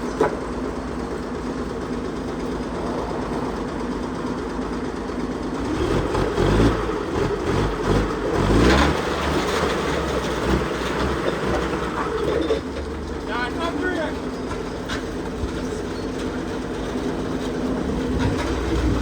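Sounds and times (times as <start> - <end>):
engine revving: 5.6 - 12.6, 17.0 - 19.0.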